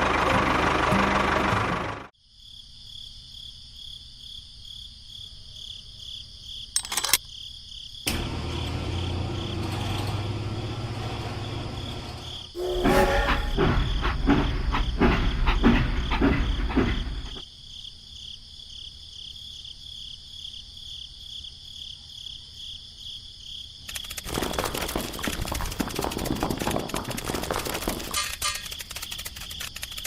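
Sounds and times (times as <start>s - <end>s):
insects chirping: 2.2s - 8.1s, 11.2s - 30.0s
mechanical clatter: 6.8s - 7.2s, 8.1s - 17.4s, 23.9s - 30.0s
small motor running: 8.1s - 13.6s
low motor hum: 8.1s - 17.4s.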